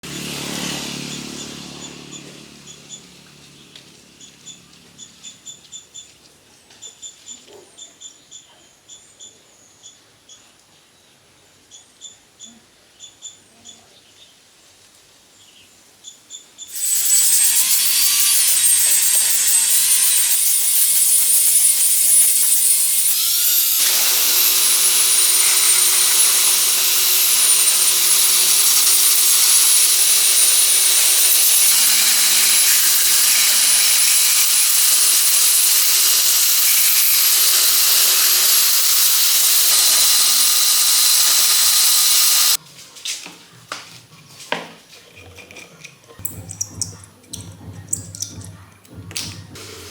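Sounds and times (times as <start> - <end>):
power tool grinding: 0.0 - 3.6, 16.7 - 42.6, 49.1 - 49.9.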